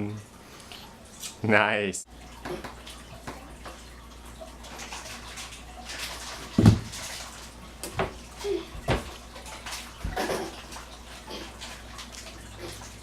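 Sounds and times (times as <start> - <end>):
knocks against kitchen cabinets: 6.6 - 6.9, 8.8 - 9.1.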